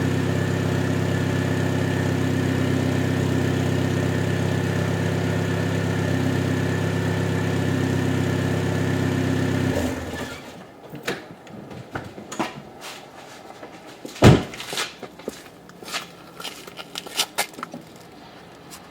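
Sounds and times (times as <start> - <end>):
car engine idling: 0.0 - 10.6
loud thump: 14.2 - 14.6.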